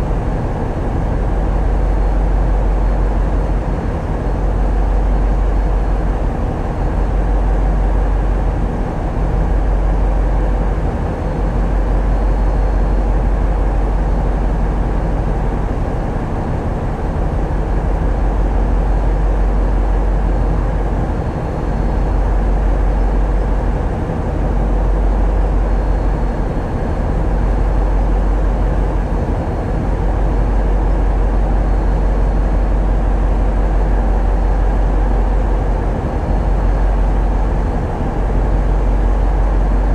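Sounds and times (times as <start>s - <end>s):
diesel engines droning: 0.0s - 39.9s.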